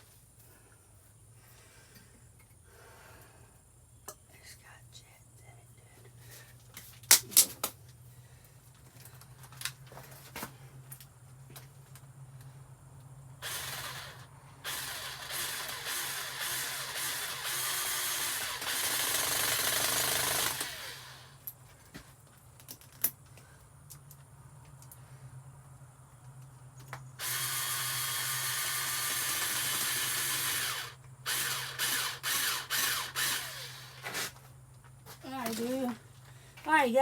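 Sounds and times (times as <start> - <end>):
handheld power tool running: 13.4 - 21.4, 27.2 - 34.4.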